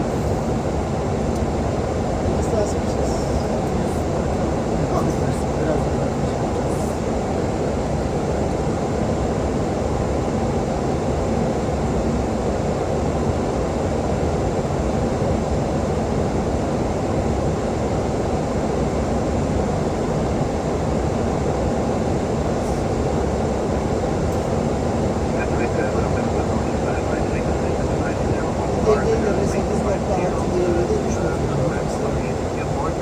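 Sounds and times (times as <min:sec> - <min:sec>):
low engine hum: 0:20.4 - 0:33.0.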